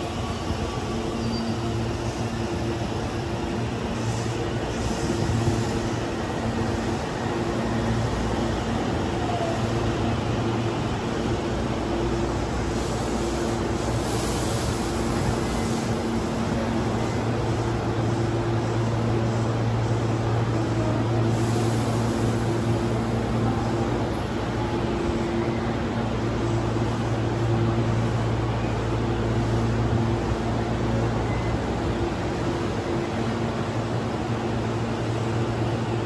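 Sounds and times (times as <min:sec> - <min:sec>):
electric train rumbling to a stop: 0:00.0 - 0:36.0
train equipment humming: 0:00.0 - 0:36.0.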